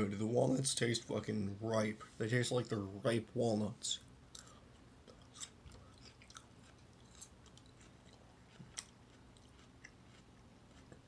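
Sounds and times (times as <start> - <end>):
faint chewing: 4.3 - 11.0.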